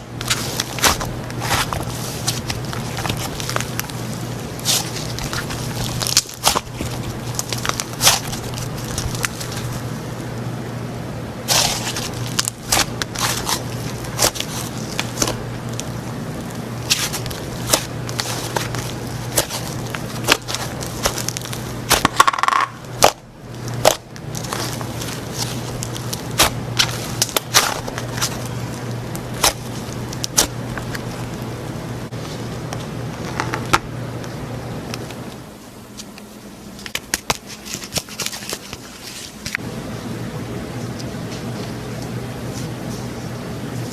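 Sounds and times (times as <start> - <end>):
slime squished by hand: 0.1 - 10.0, 11.5 - 31.6.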